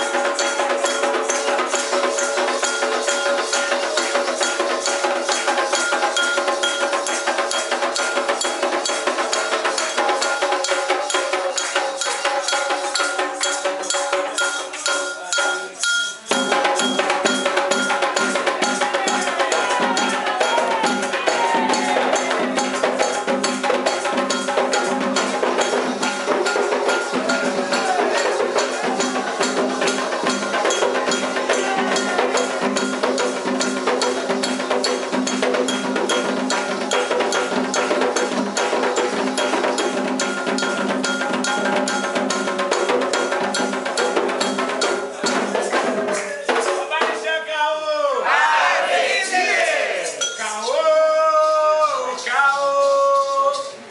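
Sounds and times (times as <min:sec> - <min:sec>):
bell rhythm: 0:00.0 - 0:47.2, 0:50.0 - 0:53.8
hand drums: 0:00.0 - 0:47.2
voices chanting: 0:16.3 - 0:23.2, 0:24.4 - 0:33.2, 0:48.2 - 0:53.4.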